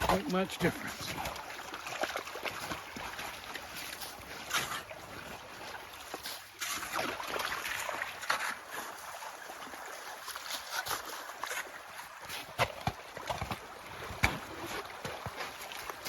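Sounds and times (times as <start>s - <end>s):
meltwater running in a ditch: 0.0s - 16.0s
shovel digging through slush and ice: 3.7s - 5.4s, 6.0s - 9.1s, 10.1s - 13.6s.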